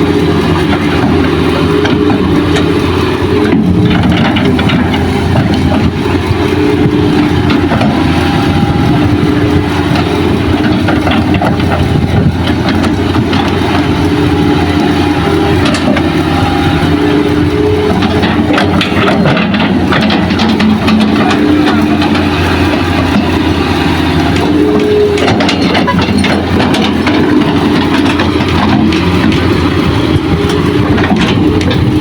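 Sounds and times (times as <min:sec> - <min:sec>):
heavy diesel engines idling: 0:00.0 - 0:32.0
light clanks and knocks: 0:17.9 - 0:22.4.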